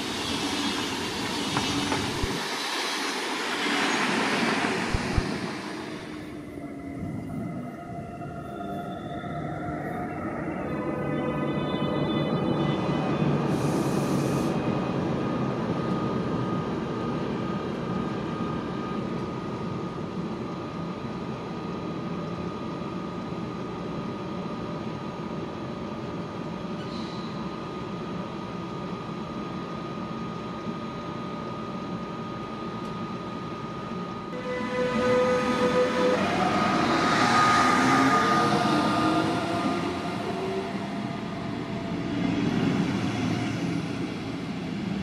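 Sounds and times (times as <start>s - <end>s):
train wheels rumbling on rails: 0.0s - 6.2s.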